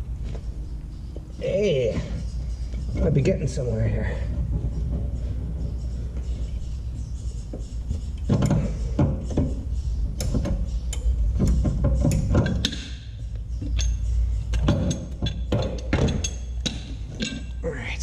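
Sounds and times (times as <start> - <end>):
low rumble: 0.0 - 12.1
hand tools knocking and clattering: 8.2 - 13.0, 13.6 - 17.6.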